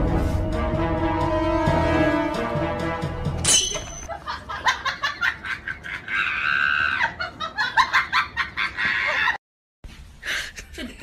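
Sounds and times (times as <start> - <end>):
background music: 0.0 - 4.1.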